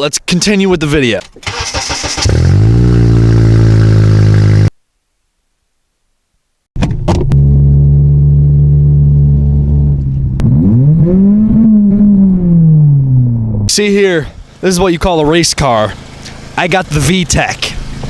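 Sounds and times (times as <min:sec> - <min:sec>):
car engine revving: 0:01.4 - 0:04.7, 0:07.3 - 0:18.0
car engine idling: 0:13.4 - 0:18.0.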